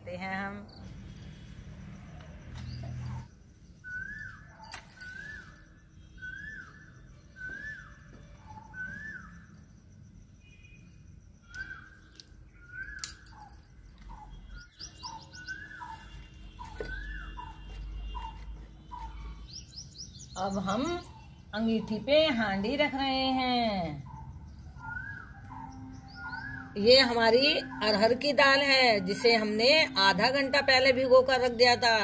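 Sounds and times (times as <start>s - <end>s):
bird calling: 23.6s - 28.1s.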